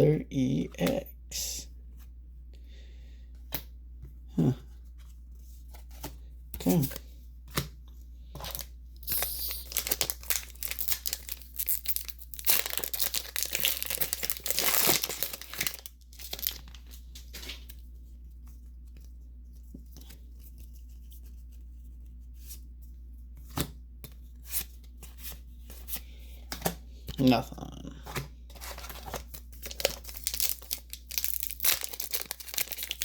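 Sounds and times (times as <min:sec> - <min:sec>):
foil wrapper tearing and crinkling: 0:09.1 - 0:17.7, 0:28.8 - 0:33.0.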